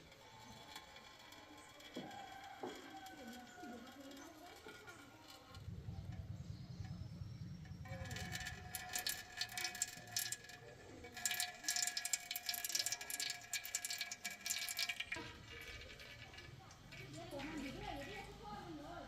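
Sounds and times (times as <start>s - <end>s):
machine whine: 5.5s - 9.5s.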